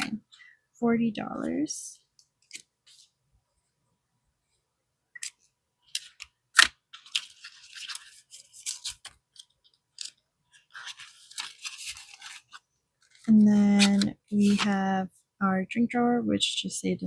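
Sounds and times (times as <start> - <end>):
sharp paper snap: 5.2 - 7.2
paper rustling and crinkling: 5.2 - 14.8.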